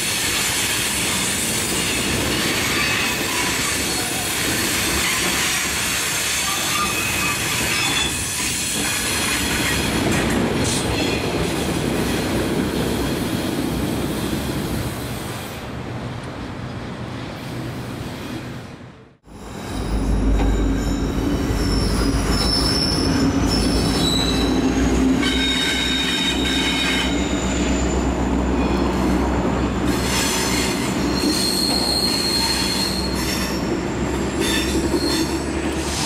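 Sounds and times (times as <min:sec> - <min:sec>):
train rumbling: 0:00.0 - 0:36.0
wheel squeal: 0:01.1 - 0:09.8, 0:19.3 - 0:28.0, 0:30.0 - 0:36.0.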